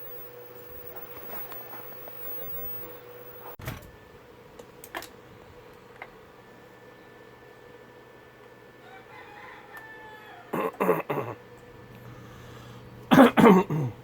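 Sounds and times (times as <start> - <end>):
faint steady hum: 0.0 - 14.0
rooster crowing: 8.7 - 11.0.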